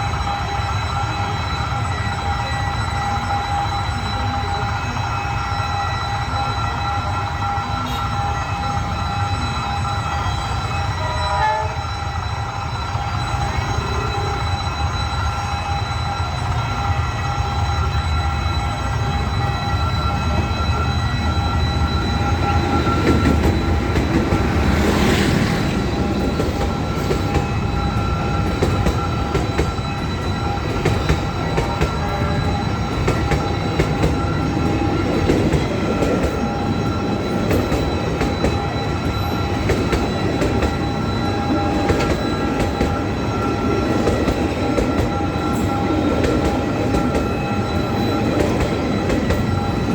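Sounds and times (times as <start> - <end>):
low train rumble: 0.0 - 49.9
steady high tones ringing: 0.0 - 49.9
train wheels squealing: 0.0 - 49.9
train wheels clicking over rail joints: 21.3 - 49.9.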